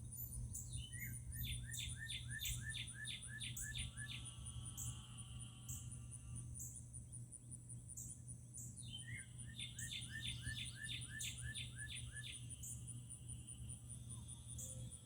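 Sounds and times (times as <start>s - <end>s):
songbird singing slurred notes: 0.0s - 4.9s, 8.0s - 12.8s.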